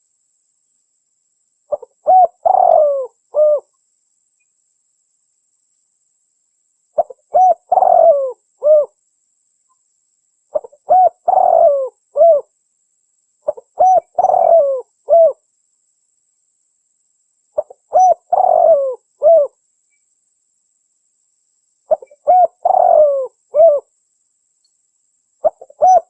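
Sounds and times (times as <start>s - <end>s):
dove cooing: 1.7s - 3.7s, 7.0s - 9.0s, 10.5s - 12.5s, 13.5s - 15.4s, 17.6s - 19.6s, 21.9s - 23.9s, 25.4s - 26.0s.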